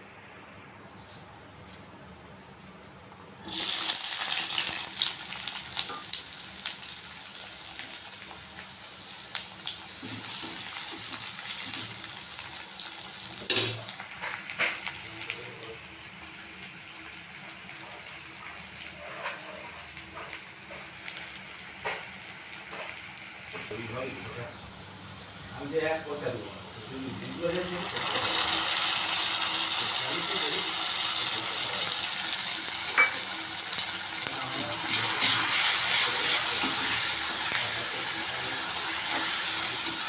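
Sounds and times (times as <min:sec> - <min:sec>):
vegetables sizzling in hot oil: 0:03.5 - 0:24.7, 0:26.9 - 0:40.0.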